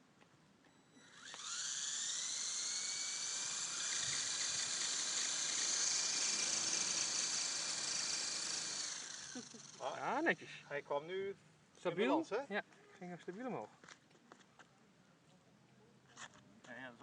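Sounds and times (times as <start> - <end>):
model helicopter whirring: 0.8 - 10.4.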